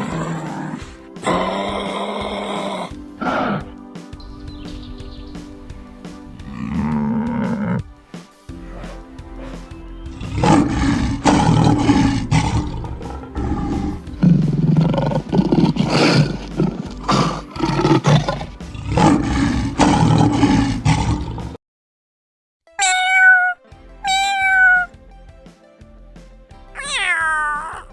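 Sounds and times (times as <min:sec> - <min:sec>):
tiger roaring and growling: 0:00.0 - 0:03.8, 0:06.3 - 0:07.9, 0:08.5 - 0:21.6.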